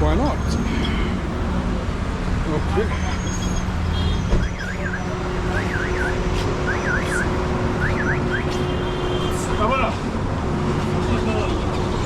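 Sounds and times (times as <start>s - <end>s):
street traffic: 0.0s - 12.0s
electronic siren chirping: 4.4s - 8.6s.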